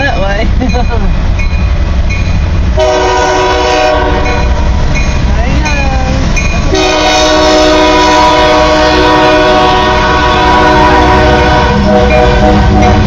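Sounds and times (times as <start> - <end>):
passing train rumble: 0.0 - 13.0
locomotive air horn blast: 2.8 - 4.4, 6.7 - 13.0.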